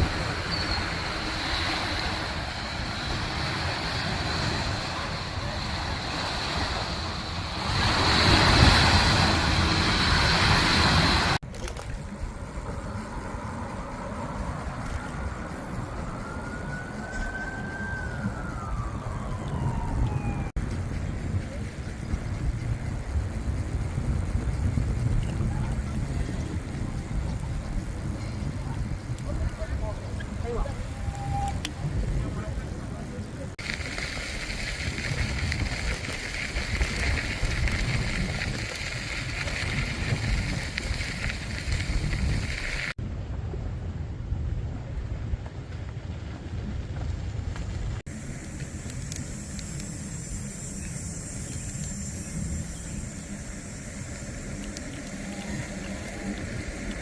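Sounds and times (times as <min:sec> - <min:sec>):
steady hiss: 0:00.0 - 0:11.4, 0:48.1 - 0:57.0
wind rumble on microphone: 0:00.0 - 0:57.0
siren wailing: 0:15.0 - 0:20.6.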